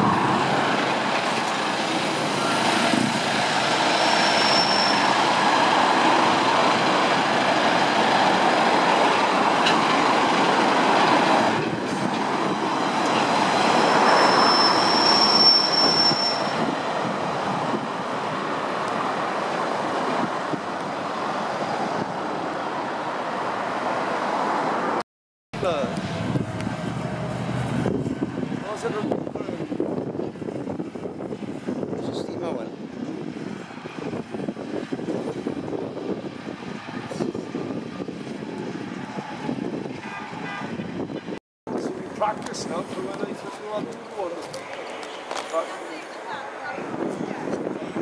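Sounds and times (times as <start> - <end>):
train engines and wheels rumbling: 0.0 - 25.0, 25.6 - 48.0
high wheel squeal: 3.6 - 6.2, 12.7 - 16.8.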